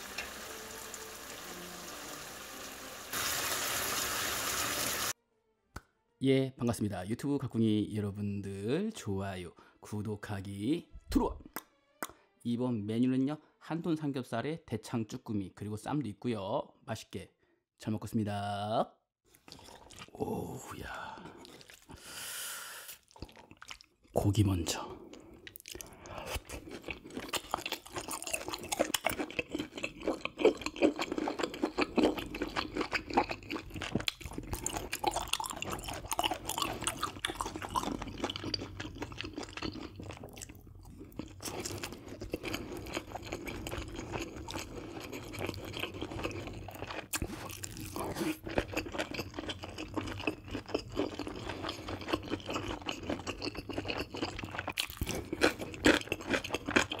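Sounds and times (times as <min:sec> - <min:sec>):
close chewing mouth clicks: 0:48.5 - 0:57.0.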